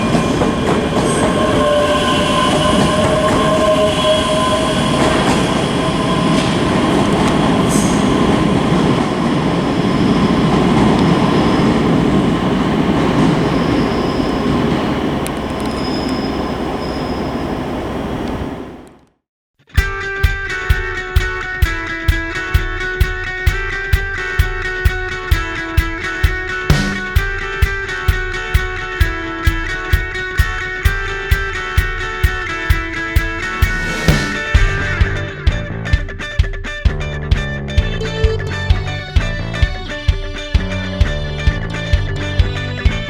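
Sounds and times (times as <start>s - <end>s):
wheel squeal: 0.0s - 18.6s
train rumble: 0.0s - 19.0s, 26.6s - 36.0s, 36.9s - 43.0s.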